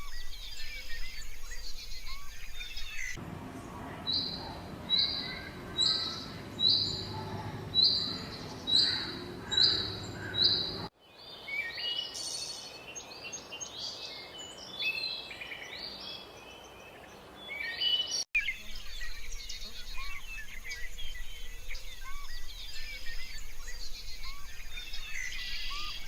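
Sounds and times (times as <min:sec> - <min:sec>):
many birds chirping: 0:00.0 - 0:26.0.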